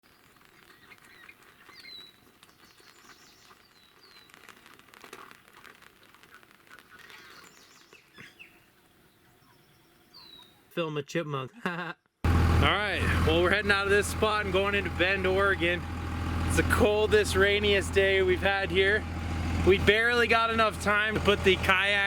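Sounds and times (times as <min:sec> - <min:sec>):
soft bird chirps and ticks: 0:00.1 - 0:05.4, 0:06.0 - 0:10.6.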